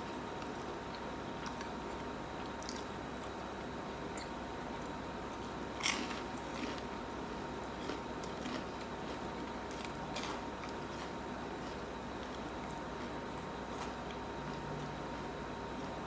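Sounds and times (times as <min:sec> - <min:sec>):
person chewing: 0:05.8 - 0:07.0, 0:07.8 - 0:14.6.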